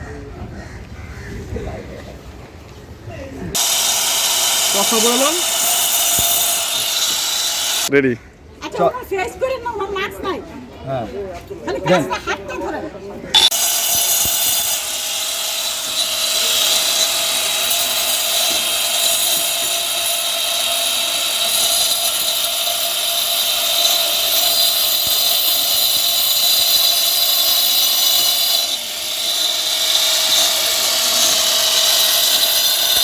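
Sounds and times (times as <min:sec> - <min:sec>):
angle grinder cutting wall: 0:03.5 - 0:07.9, 0:13.4 - 0:33.0.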